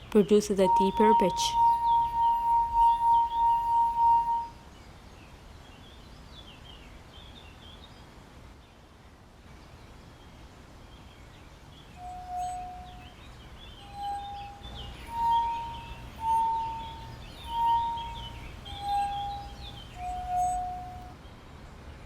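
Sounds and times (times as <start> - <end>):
lower-pitched glass singing: 0.0 - 4.6, 12.0 - 21.2
wine glass singing: 0.0 - 4.6, 12.0 - 21.2
faint bird chirps: 0.1 - 4.5, 11.9 - 21.2.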